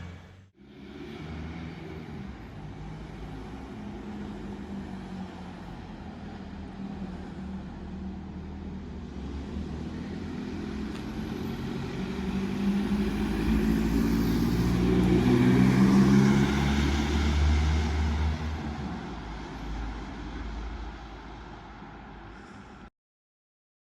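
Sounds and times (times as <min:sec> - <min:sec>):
vehicle driving past: 0:09.0 - 0:22.8.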